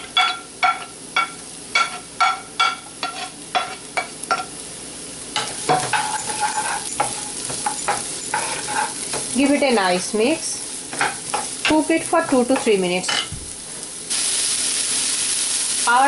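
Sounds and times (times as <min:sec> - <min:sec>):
vegetables sizzling in oil: 0:00.0 - 0:16.0
utensil scraping and stirring: 0:05.7 - 0:09.3.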